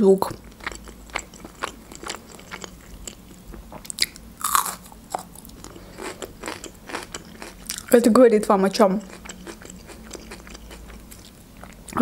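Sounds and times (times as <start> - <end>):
crunching bites of pepper: 3.8 - 8.0.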